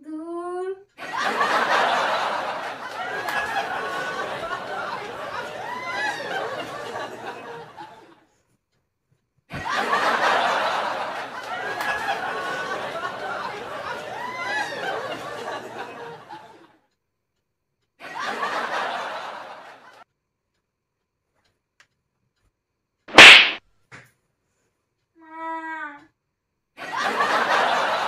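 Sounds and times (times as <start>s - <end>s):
open-hand slap: 23.1s - 24.1s.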